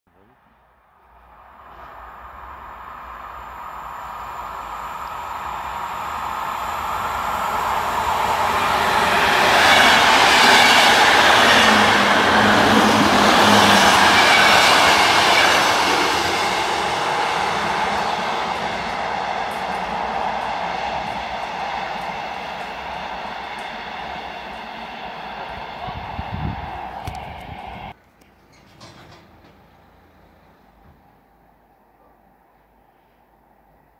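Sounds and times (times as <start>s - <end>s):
electric train passing: 0.5s - 28.0s.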